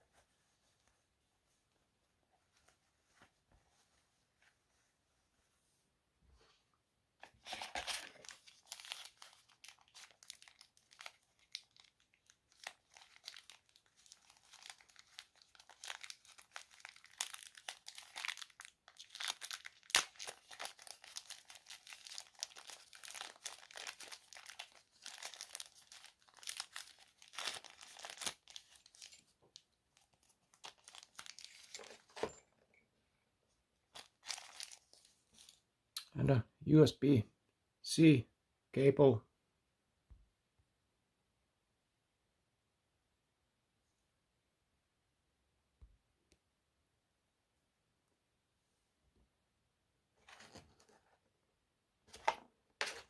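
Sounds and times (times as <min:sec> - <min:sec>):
packaging crinkling and rustling: 0:07.2 - 0:32.4, 0:33.9 - 0:35.6, 0:50.2 - 0:51.2, 0:52.1 - 0:53.0.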